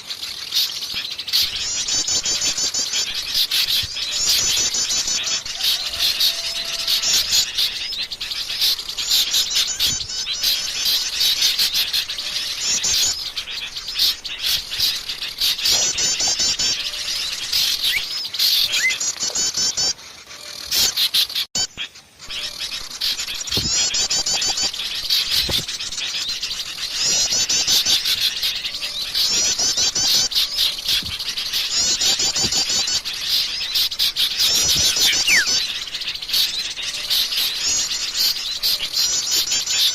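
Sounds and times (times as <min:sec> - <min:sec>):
songbirds chirping and twittering: 0:00.0 - 0:39.9
fast high bird trills: 0:21.7 - 0:39.7.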